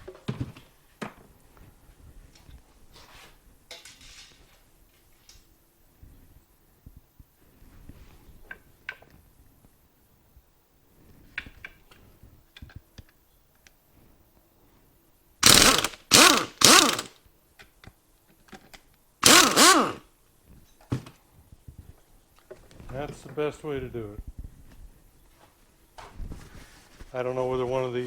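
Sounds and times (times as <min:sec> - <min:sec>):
pneumatic impact wrench bursts: 0:15.4 - 0:17.1, 0:19.2 - 0:20.0.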